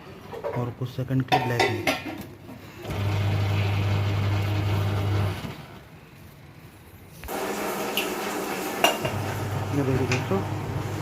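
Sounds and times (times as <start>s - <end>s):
washing machine motor humming: 2.8s - 5.9s, 7.3s - 11.0s.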